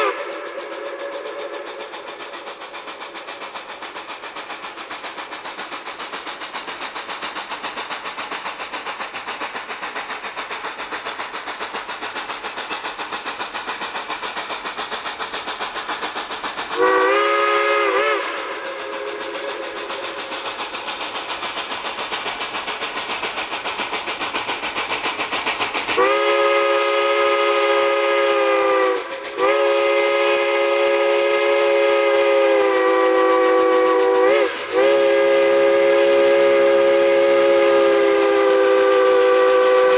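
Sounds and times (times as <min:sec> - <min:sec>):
steam locomotive exhaust beats: 0:00.0 - 0:39.9
steam whistle chord: 0:16.8 - 0:19.1, 0:26.0 - 0:39.9.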